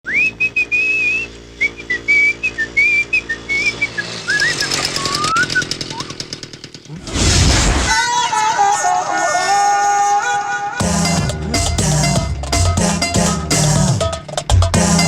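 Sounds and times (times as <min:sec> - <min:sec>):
whistled tune: 0:00.0 - 0:06.2
fast ticking rhythm: 0:10.8 - 0:15.0.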